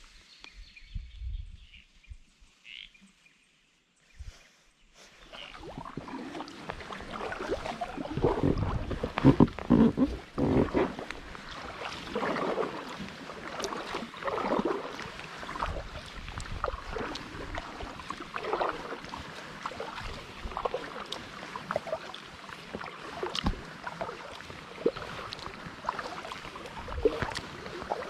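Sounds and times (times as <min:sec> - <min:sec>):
paddle splashing in water: 0:05.1 - 0:28.0
low thumps: 0:08.0 - 0:11.0.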